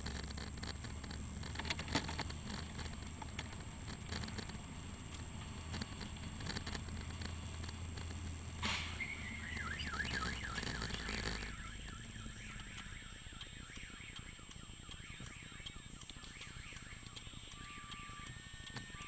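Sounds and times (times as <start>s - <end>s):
rumbling noise: 0.0s - 12.7s
car alarm siren warbling: 8.9s - 19.0s
short steady beeps: 9.0s - 19.0s.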